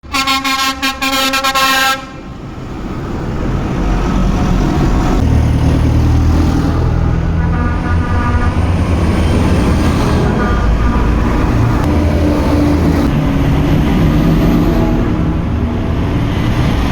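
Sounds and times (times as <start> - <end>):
vehicle horn: 0.0 - 2.2, 7.3 - 9.1, 10.1 - 12.0
tractor diesel engine rumbling: 0.0 - 16.9.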